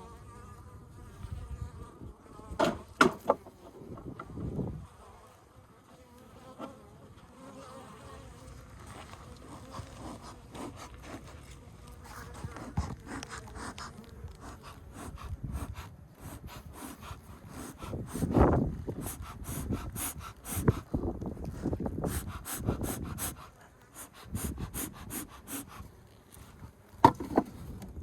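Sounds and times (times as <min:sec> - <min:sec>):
honeybees buzzing: 0:00.0 - 0:27.4
knocks and scrapes of handling: 0:26.2 - 0:28.0.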